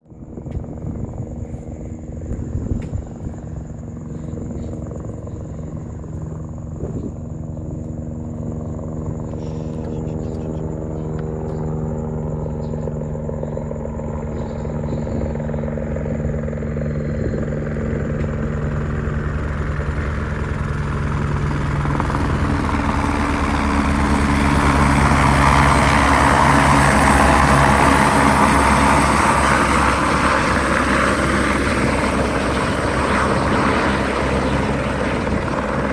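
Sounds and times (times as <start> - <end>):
helicopter rotor beat: 0.0 - 35.9
turbine engine whine: 0.0 - 35.9.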